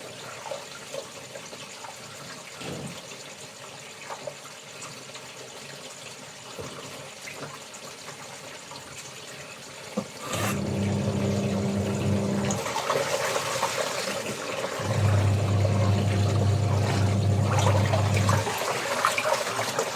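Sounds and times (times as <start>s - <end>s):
water running: 6.1s - 19.9s
motor hum: 10.2s - 12.6s, 14.8s - 18.5s.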